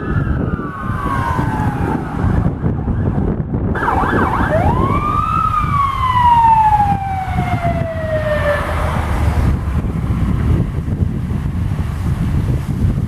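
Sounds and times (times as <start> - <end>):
emergency vehicle siren: 0.0 - 10.2
low rumble: 0.2 - 13.0.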